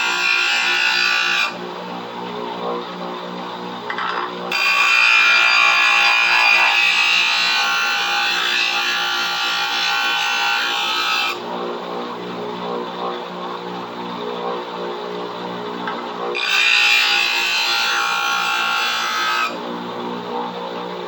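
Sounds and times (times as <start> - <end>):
bench grinder motor hum: 0.0 - 21.0
metal grinding on wheel: 4.0 - 8.4.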